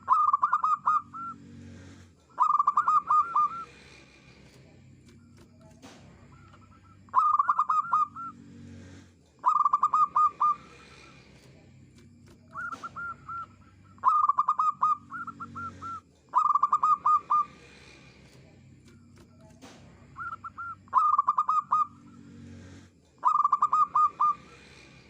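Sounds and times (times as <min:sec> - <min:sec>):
dove cooing: 0:00.0 - 0:03.9, 0:06.4 - 0:08.4, 0:09.4 - 0:11.2, 0:12.4 - 0:17.8, 0:20.2 - 0:22.2, 0:23.2 - 0:24.8.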